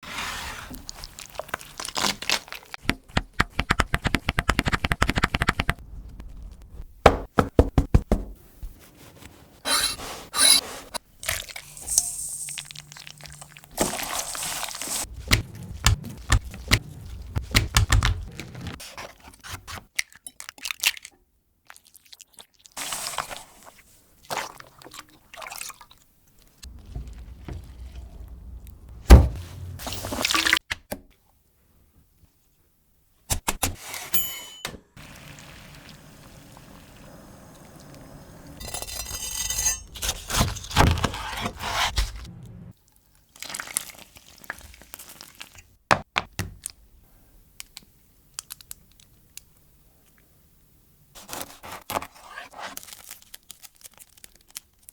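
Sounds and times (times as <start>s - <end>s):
liquid pouring and dripping: 26.7s - 28.8s.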